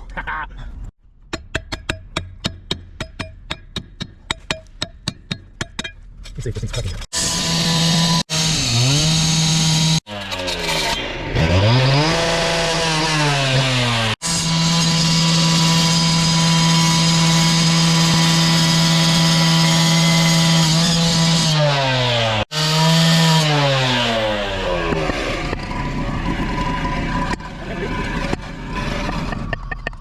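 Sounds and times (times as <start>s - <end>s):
cut-off saw engine revving: 7.1s - 29.3s.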